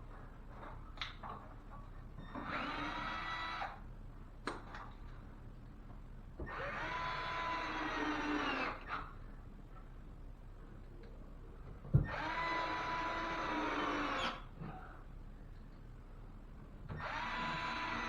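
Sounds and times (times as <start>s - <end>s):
cordless drill driving screws: 6.5s - 9.0s, 12.0s - 14.4s, 17.0s - 18.0s.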